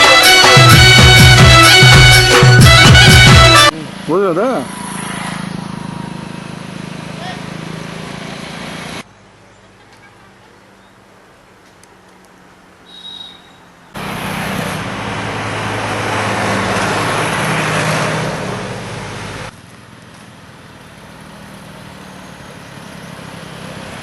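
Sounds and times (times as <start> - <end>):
background traffic: 0.0 - 24.0
vehicle engine and road noise: 0.0 - 24.0.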